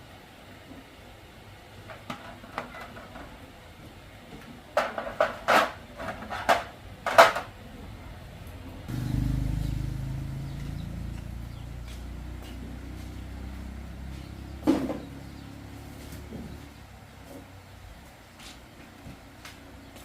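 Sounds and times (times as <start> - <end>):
engine idling: 8.0 - 17.4.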